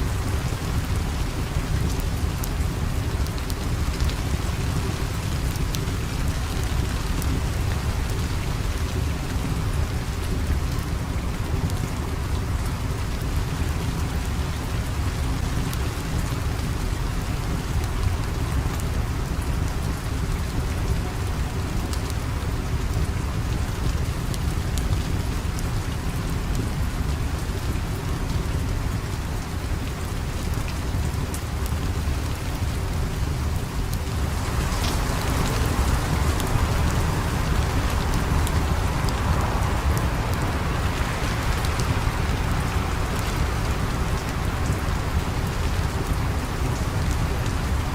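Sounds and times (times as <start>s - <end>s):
steady rain: 0.0s - 47.9s.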